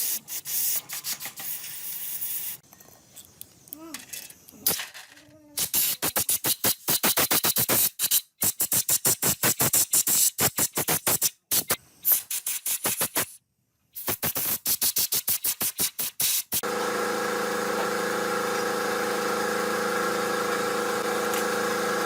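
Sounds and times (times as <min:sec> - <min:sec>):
hand tool scrubbing engine part: 0:16.6 - 0:22.0.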